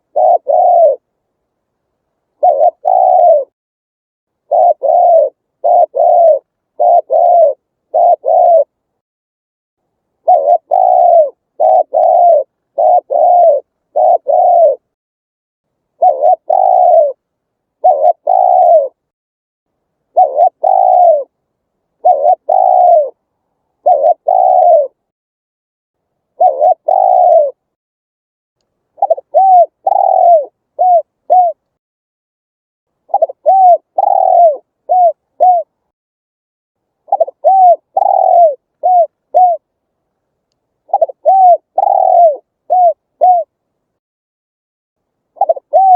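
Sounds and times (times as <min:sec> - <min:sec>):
dove cooing: 0:00.0 - 0:01.1, 0:02.4 - 0:03.6, 0:04.4 - 0:08.8, 0:10.2 - 0:14.9, 0:16.0 - 0:17.2, 0:17.8 - 0:19.0, 0:20.1 - 0:21.3, 0:22.0 - 0:25.0, 0:26.3 - 0:27.6, 0:29.0 - 0:31.6, 0:33.1 - 0:35.8, 0:37.1 - 0:39.7, 0:40.9 - 0:43.6, 0:45.4 - 0:45.9.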